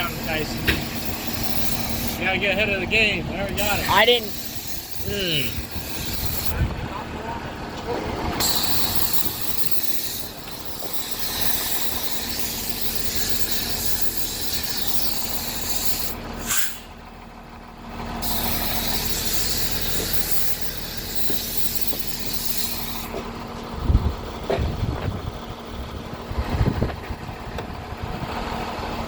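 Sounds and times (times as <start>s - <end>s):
hose spraying water: 0.0s - 2.2s, 3.6s - 6.5s, 8.4s - 16.9s, 18.2s - 23.1s
low engine hum: 0.0s - 29.0s.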